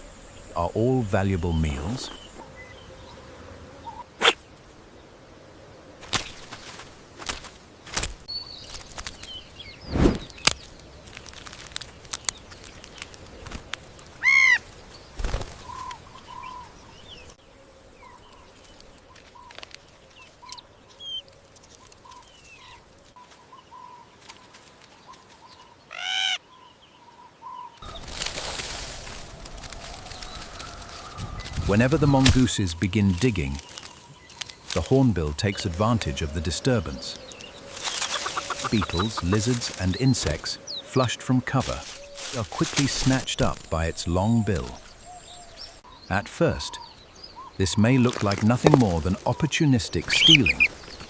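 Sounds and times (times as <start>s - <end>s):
high peeping animal calls: 0.0s - 4.4s, 14.2s - 14.7s, 27.4s - 51.0s
rustles: 5.9s - 25.8s, 27.8s - 51.0s
loud whooshing rush: 9.8s - 10.3s
louder animal calls: 36.2s - 41.0s, 50.0s - 50.8s.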